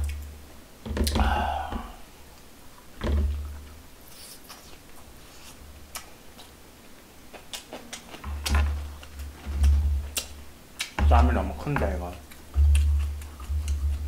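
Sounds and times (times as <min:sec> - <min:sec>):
low thumps: 0:00.8 - 0:02.1
chewing: 0:04.0 - 0:14.0
wet mouth clicks and smacks: 0:10.1 - 0:11.0.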